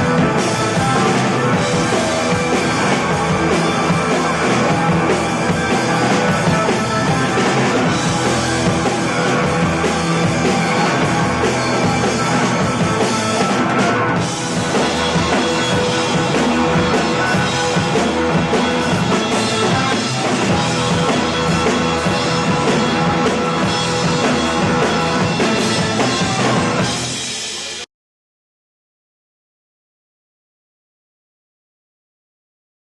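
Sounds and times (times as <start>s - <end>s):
loud rock music: 0.0s - 27.9s.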